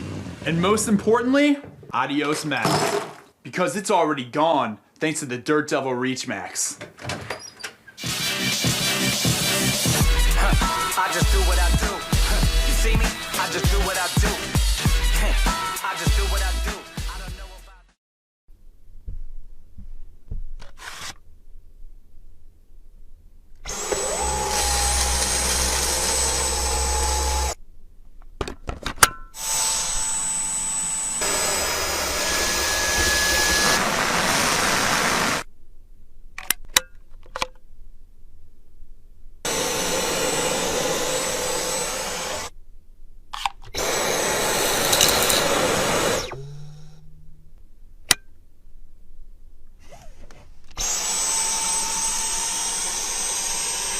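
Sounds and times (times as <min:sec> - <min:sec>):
vacuum cleaner running: 0:23.7 - 0:27.6, 0:29.6 - 0:35.5, 0:39.5 - 0:42.5, 0:43.8 - 0:46.9, 0:50.8 - 0:53.9.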